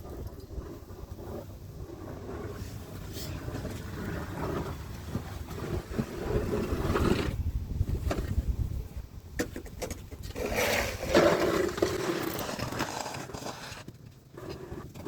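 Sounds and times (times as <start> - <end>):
snow shovel scraping pavement: 0.5 - 7.4, 10.2 - 15.0.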